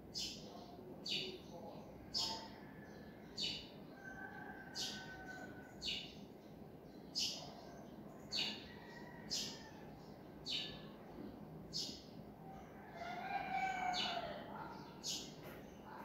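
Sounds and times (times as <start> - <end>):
small bird chirping: 0.1 - 2.5, 4.7 - 12.2.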